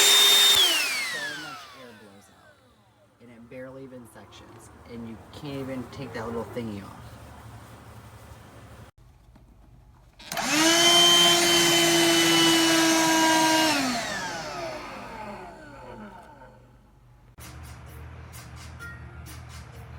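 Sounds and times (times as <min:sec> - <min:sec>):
handheld vacuum motor whining: 0:00.0 - 0:03.0, 0:10.2 - 0:16.8.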